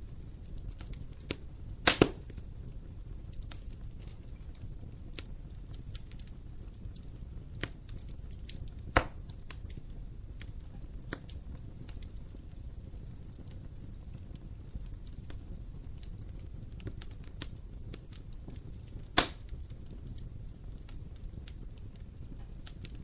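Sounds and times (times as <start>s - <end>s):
fire crackling and popping: 0.0s - 23.0s
low rumble of flames: 0.0s - 23.0s
sharp loud pop: 1.9s - 2.2s.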